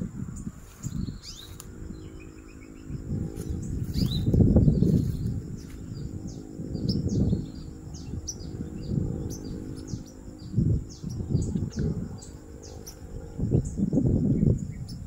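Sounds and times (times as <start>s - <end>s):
rustling of branch and leaves: 0.0s - 2.3s, 3.2s - 6.1s
small songbird chirping: 0.0s - 15.0s.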